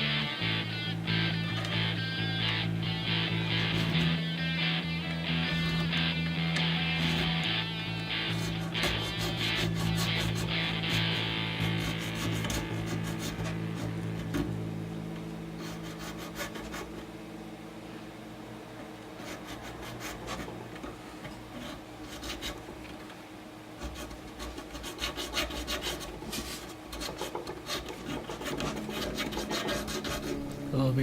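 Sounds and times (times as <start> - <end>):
file scraping guitar nut: 3.4 - 4.2, 5.3 - 14.5, 15.6 - 17.0, 19.2 - 22.7, 23.8 - 30.5.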